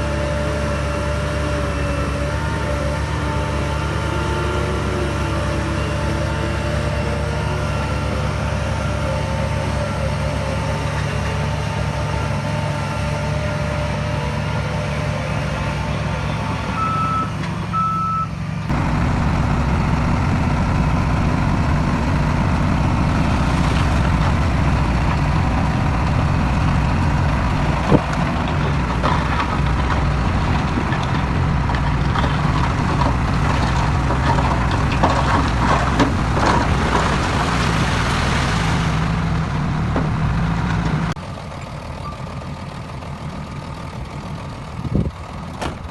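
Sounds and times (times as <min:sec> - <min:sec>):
diesel earthmoving machinery: 0:00.0 - 0:45.9
reversing beeps: 0:16.8 - 0:18.3
clatter and knocks of stones: 0:27.6 - 0:38.4.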